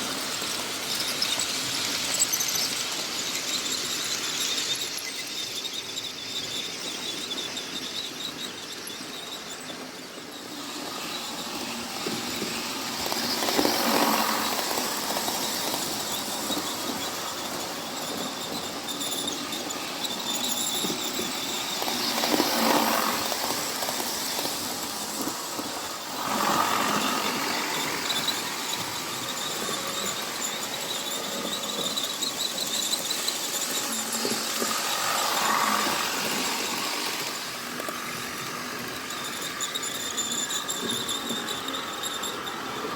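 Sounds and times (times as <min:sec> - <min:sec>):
model train motors whirring: 0:00.0 - 0:42.9.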